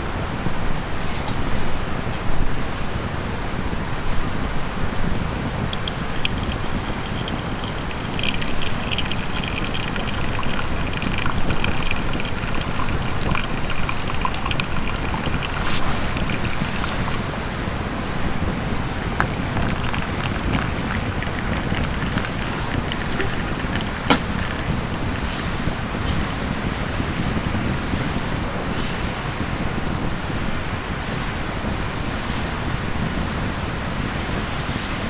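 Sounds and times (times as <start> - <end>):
campfire crackling: 4.4 - 27.8.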